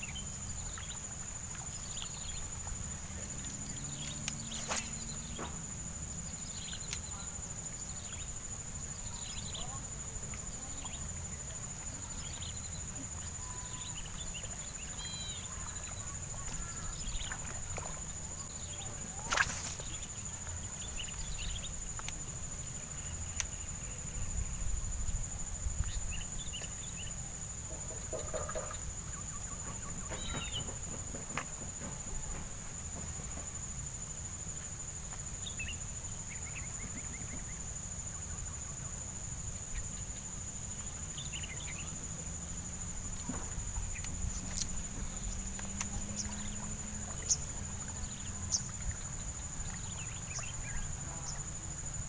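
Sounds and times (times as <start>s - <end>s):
bird calls: 3.6s - 5.6s, 28.0s - 31.3s
high-pitched insect drone: 10.6s - 25.4s.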